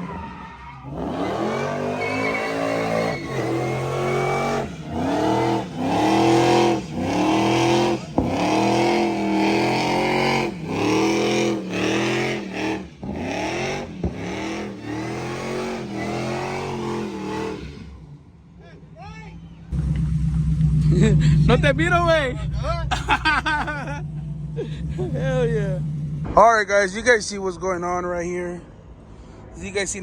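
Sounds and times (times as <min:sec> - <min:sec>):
car engine revving hard: 0:00.9 - 0:18.1, 0:19.7 - 0:26.3.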